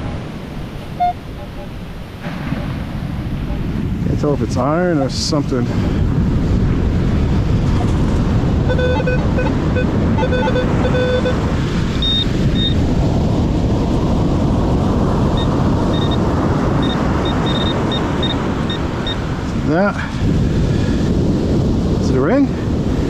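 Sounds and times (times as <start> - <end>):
wind on microphone: 0.0 - 23.0
metal detector buzzy beeps: 8.7 - 11.4, 12.0 - 12.8, 15.4 - 16.2, 16.8 - 19.2
metal detector high chirps: 8.7 - 11.4, 12.0 - 12.8, 15.4 - 16.2, 16.8 - 19.2.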